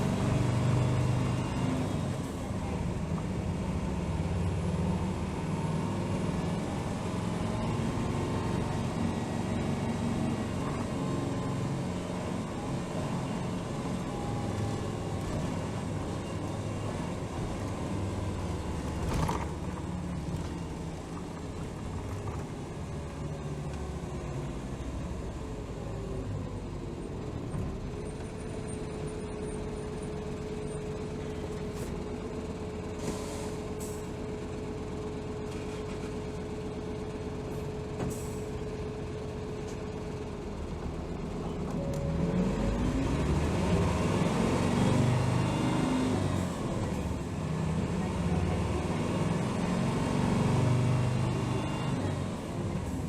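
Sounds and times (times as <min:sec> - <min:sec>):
bus diesel engine: 0:00.0 - 0:53.0
air brake hisses: 0:33.0 - 0:34.1.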